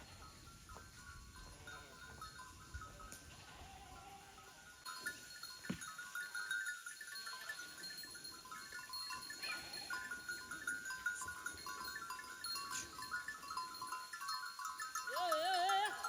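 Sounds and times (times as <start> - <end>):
sheep bells jangling: 0.0 - 16.0
sheep bleating: 3.3 - 4.5.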